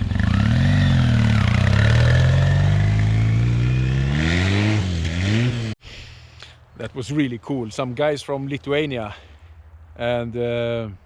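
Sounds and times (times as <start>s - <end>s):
motorcycle engine revving: 0.0s - 5.8s.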